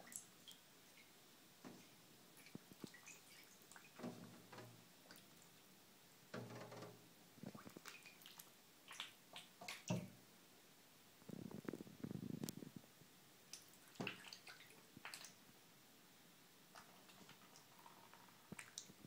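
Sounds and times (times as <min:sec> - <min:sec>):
duckling splashing in water: 0:06.4 - 0:10.2, 0:13.5 - 0:15.4.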